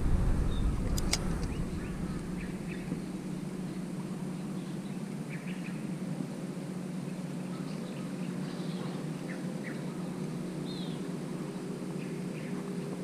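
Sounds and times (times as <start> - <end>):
bird chirps: 0.4 - 3.8.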